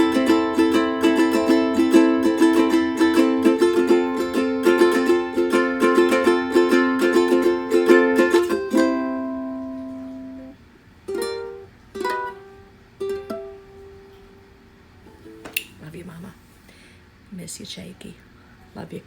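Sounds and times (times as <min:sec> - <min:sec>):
ukulele notes plucked: 0:00.0 - 0:14.5
ukulele strumming: 0:00.0 - 0:15.8.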